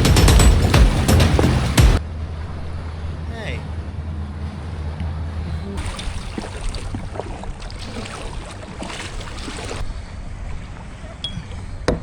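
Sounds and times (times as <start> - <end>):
heavy rain on water: 0.0 - 2.0, 5.8 - 9.8
small water splashes: 5.8 - 11.6.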